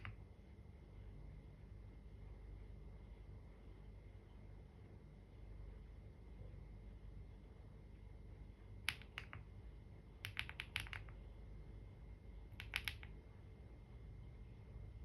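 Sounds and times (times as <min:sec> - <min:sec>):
computer keyboard typing: 0:00.0 - 0:00.2, 0:08.9 - 0:09.5, 0:10.2 - 0:11.2, 0:12.5 - 0:13.2
faint steady hum: 0:00.0 - 0:15.0.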